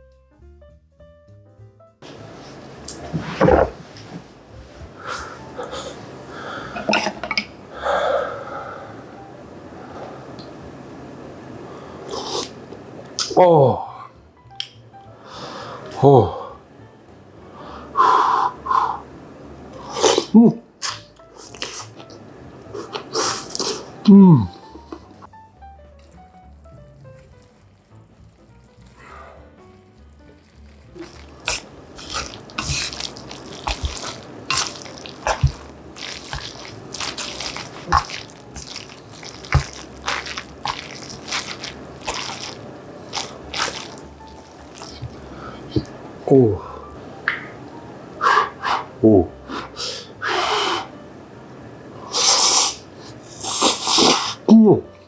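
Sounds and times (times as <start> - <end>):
breathy burst: 4.9 - 6.9, 7.7 - 9.1, 29.0 - 29.7, 46.4 - 47.0, 48.2 - 50.9
crunchy slurpy mouth noises: 12.1 - 12.6, 19.8 - 22.1, 22.8 - 25.1, 26.0 - 45.9, 52.1 - 54.4.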